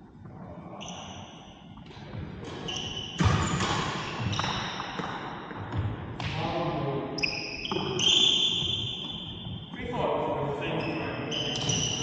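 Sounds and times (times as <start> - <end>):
shoes squeaking on court floor: 0.8 - 6.4, 7.2 - 10.0, 10.6 - 12.0
racket hitting shuttlecock: 2.4 - 6.4.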